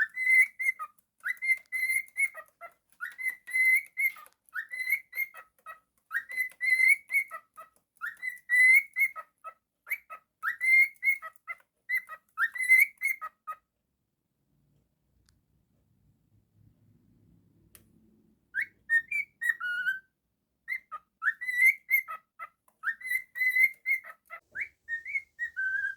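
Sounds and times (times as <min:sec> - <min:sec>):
cockatiel whistling: 0:00.0 - 0:13.4, 0:18.6 - 0:20.1, 0:20.7 - 0:25.9
bird chirps: 0:00.0 - 0:13.6, 0:18.5 - 0:25.9.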